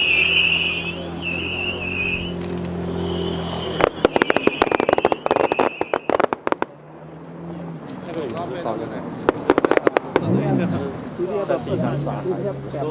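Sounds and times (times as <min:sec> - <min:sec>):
high wavering whistle: 0:00.0 - 0:06.2
fireworks crackling bangs: 0:03.4 - 0:06.8, 0:09.2 - 0:11.2.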